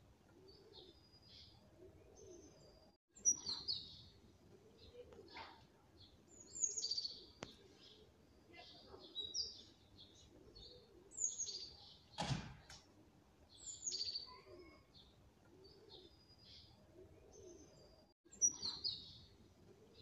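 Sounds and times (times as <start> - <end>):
birds chirping: 0.4 - 12.9, 13.5 - 20.0
short thump: 12.2 - 12.8.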